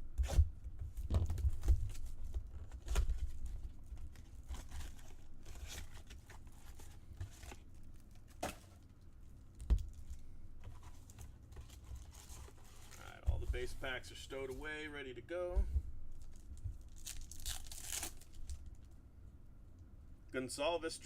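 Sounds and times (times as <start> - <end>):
cardboard and card packs handled: 0.2 - 8.9, 9.6 - 14.8, 15.5 - 18.8
wrapper tearing and crinkling: 16.2 - 18.9.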